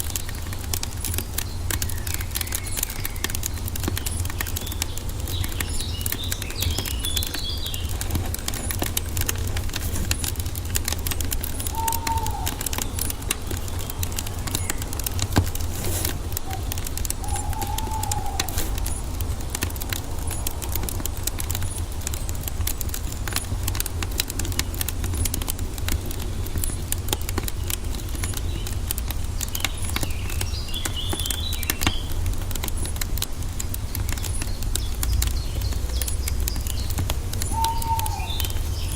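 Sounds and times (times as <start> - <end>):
birds chirping: 0.0 - 38.9
wood fire crackling and popping: 0.0 - 38.9
short low bird calls: 11.6 - 15.0, 16.1 - 19.2, 34.2 - 38.9.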